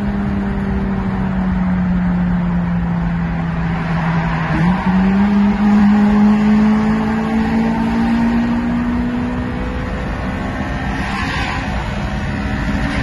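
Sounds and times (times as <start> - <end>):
road and wind noise: 0.0 - 13.0
car engine revving high: 2.8 - 13.0.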